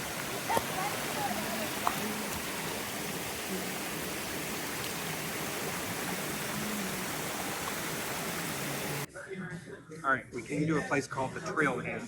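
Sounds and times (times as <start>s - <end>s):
flowing water rushing: 0.0s - 9.1s.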